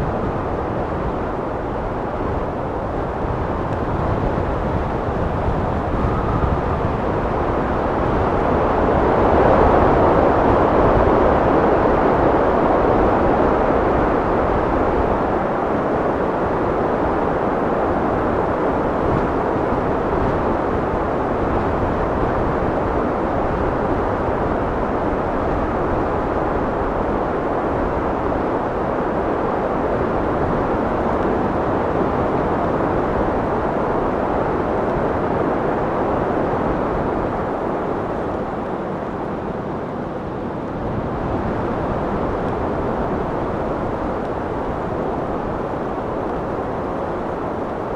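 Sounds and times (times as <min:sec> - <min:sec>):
steady rushing wind: 0:00.0 - 0:47.9.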